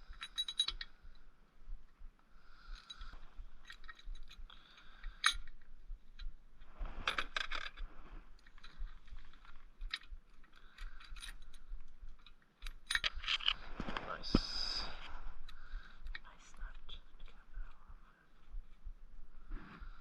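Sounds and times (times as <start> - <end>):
metal nuts and washers clinking: 0.0 - 1.0, 7.0 - 7.8, 8.4 - 13.7.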